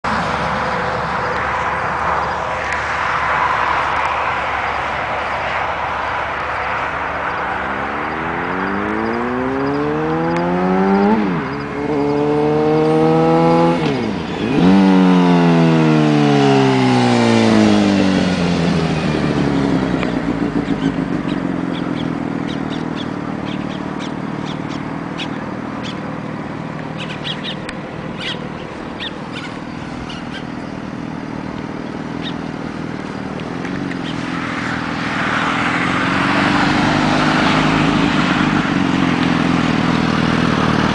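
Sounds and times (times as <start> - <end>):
motorcycle engine accelerating: 5.5 - 40.9.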